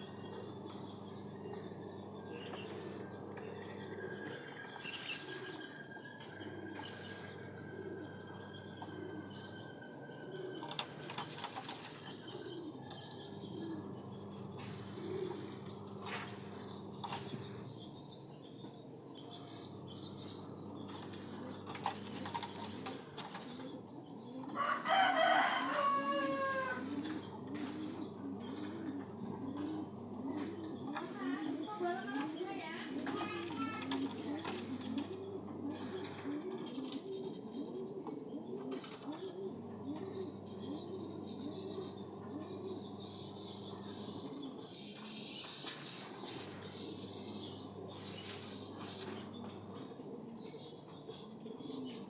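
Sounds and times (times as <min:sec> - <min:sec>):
low cooing: 0:00.0 - 0:18.2, 0:19.1 - 0:45.4, 0:46.0 - 0:52.0
rooster crowing: 0:24.4 - 0:27.3
kittens rustling and rubbing: 0:45.1 - 0:49.7.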